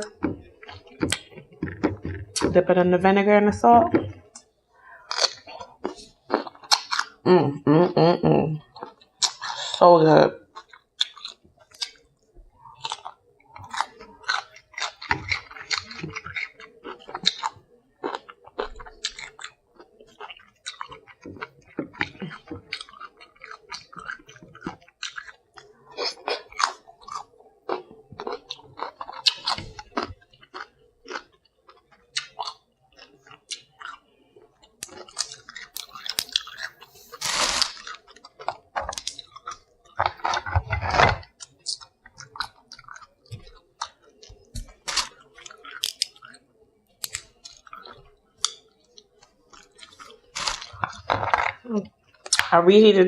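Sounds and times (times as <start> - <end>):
chewing crunchy cucumber: 0.0 - 2.6, 3.9 - 7.6, 8.5 - 52.5
wet mouth sounds: 10.5 - 34.1, 34.7 - 46.4.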